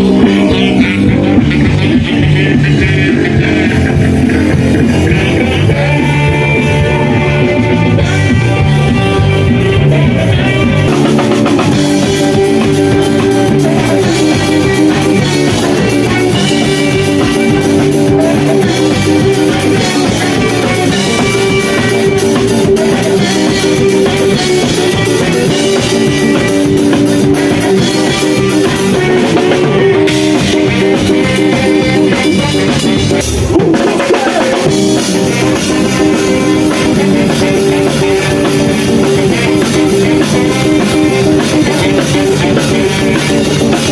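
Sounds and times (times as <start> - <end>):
rock music with guitar and drums: 0.0 - 43.9.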